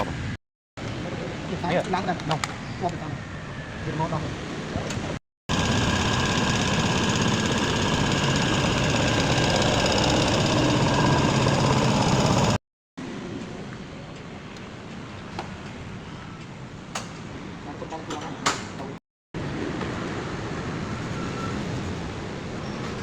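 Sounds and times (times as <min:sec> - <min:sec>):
engine idling: 0:05.5 - 0:12.6.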